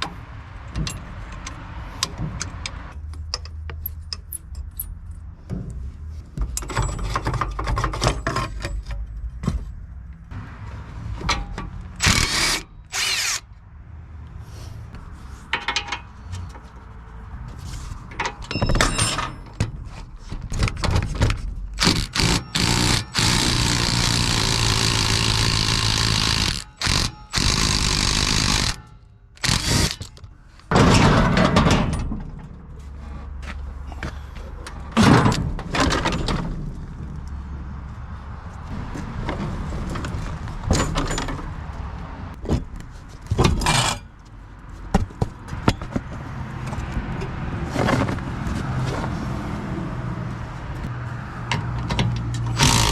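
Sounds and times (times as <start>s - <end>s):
metal clanks and scrapes: 0.0s - 9.7s, 15.3s - 16.8s, 17.6s - 23.5s, 28.6s - 37.0s, 43.0s - 44.3s.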